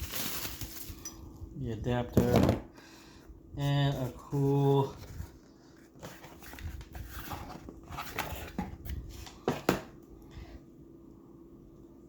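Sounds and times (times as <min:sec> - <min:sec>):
packaging rustling and crinkling: 0:00.0 - 0:01.1, 0:03.9 - 0:09.4.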